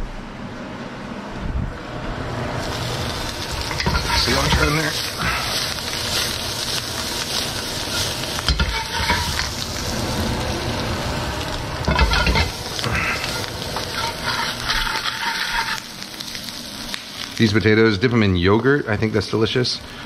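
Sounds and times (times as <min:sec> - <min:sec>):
potatoes sizzling in oil: 0:02.6 - 0:20.0
spoon scraping and knocking pan: 0:03.7 - 0:04.8, 0:07.9 - 0:09.6, 0:11.9 - 0:12.6, 0:13.4 - 0:15.8.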